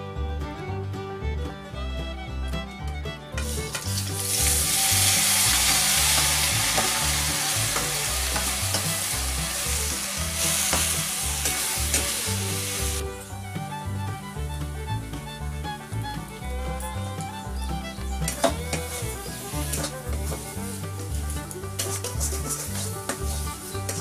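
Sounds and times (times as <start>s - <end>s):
paste sizzling in hot oil: 3.4s - 13.0s, 18.4s - 24.0s
spatula stirring in a steel pan: 3.4s - 13.0s, 19.6s - 24.0s.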